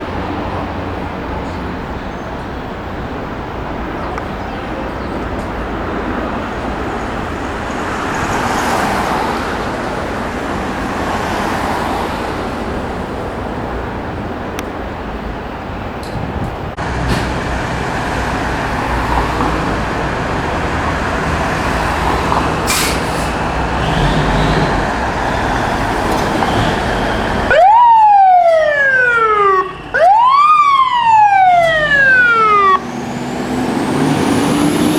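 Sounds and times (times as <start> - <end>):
street traffic noise: 0.0 - 34.9
fire engine siren wailing: 21.4 - 34.9.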